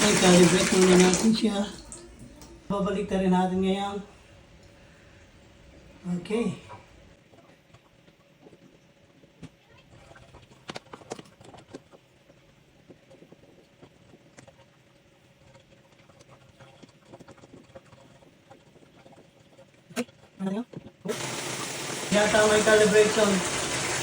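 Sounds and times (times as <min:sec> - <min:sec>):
faint steady hum: 0:01.1 - 0:10.7.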